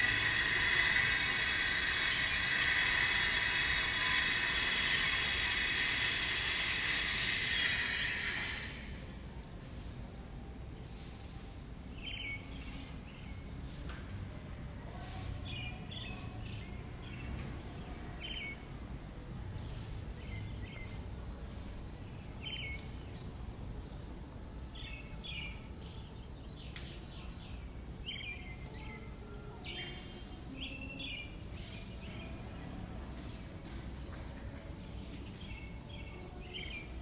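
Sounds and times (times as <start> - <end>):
brief hissing strokes: 0.0 - 10.1, 10.8 - 11.4, 12.4 - 12.9, 13.5 - 13.9, 16.0 - 16.4, 19.6 - 20.0, 21.4 - 21.8, 29.8 - 30.4, 32.9 - 33.6, 34.7 - 37.0
small birds chirping: 11.9 - 13.8, 14.9 - 18.6, 19.6 - 33.4, 34.7 - 37.0.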